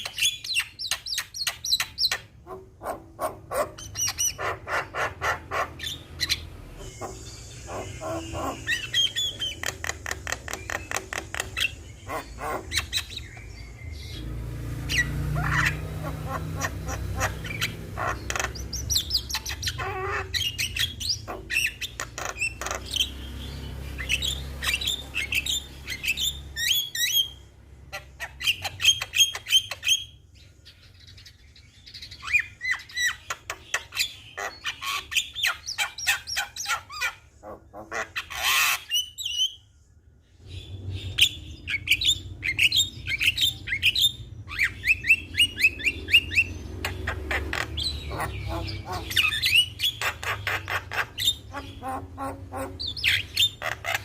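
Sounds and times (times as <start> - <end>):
bird chattering and whistling: 0.0 - 14.2, 14.9 - 30.2, 41.0 - 54.0.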